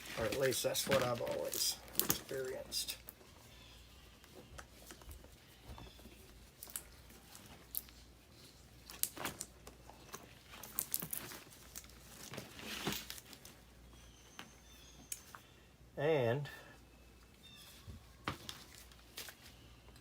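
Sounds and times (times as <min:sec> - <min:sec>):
hands handling motor parts: 0:00.0 - 0:03.2.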